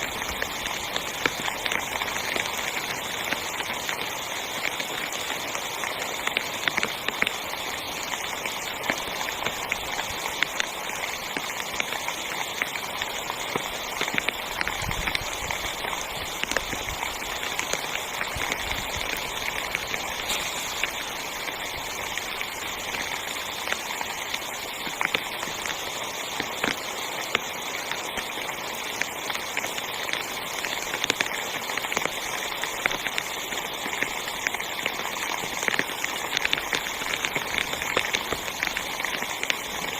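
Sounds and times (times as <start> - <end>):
heavy rain on a tent: 0.0 - 39.9.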